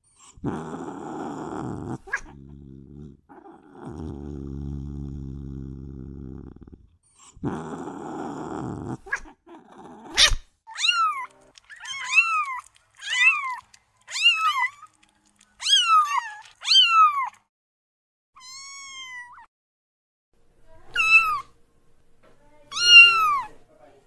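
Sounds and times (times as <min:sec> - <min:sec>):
kitten mewing: 0:10.0 - 0:14.8, 0:20.9 - 0:21.5, 0:22.7 - 0:23.5.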